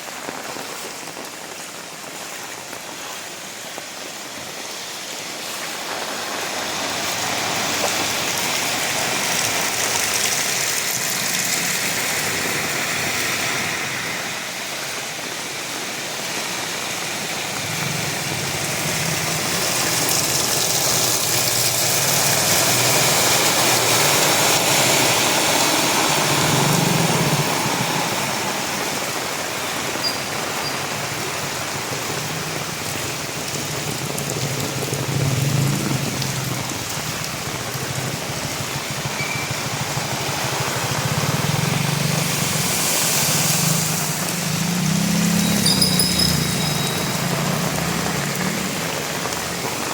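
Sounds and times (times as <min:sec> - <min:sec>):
heavy rain falling: 0:00.0 - 0:49.9
vehicle engine humming: 0:34.3 - 0:49.9.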